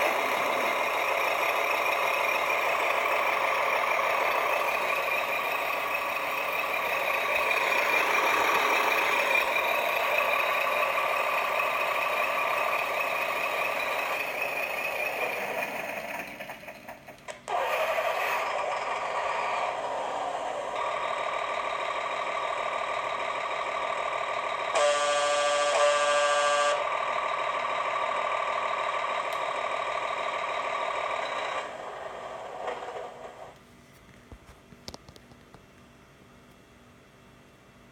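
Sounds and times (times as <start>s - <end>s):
toy truck motors whining: 0.0s - 33.6s
horn-like tone: 24.8s - 26.8s.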